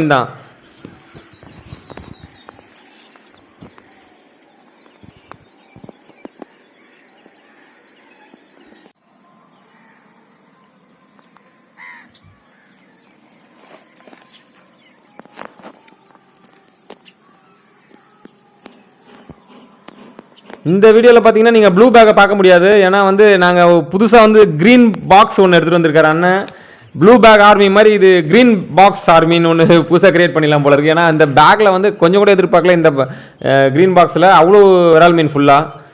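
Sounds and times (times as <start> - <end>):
insects chirping: 0.0 - 21.4, 24.4 - 35.9
bird call: 31.5 - 35.9.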